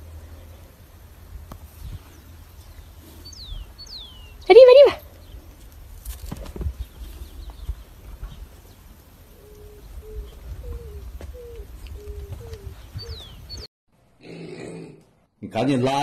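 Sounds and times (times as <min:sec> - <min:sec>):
wind rumble on microphone: 0:01.1 - 0:13.7
bird cooing: 0:09.3 - 0:13.6.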